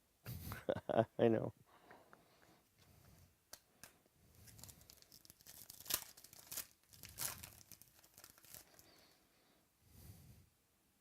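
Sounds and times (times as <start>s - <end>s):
plastic wrapper tearing and crinkling: 3.8s - 9.2s.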